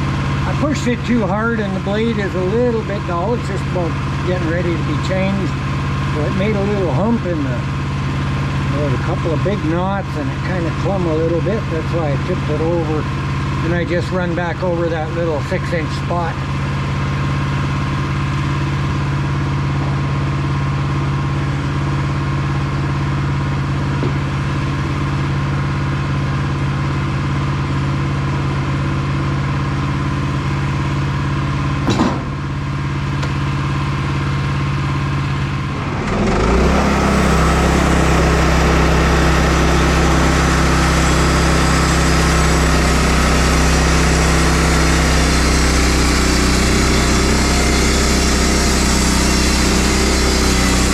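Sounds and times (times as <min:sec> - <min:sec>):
gas engine running: 0:00.0 - 0:50.9
knock: 0:31.8 - 0:32.3.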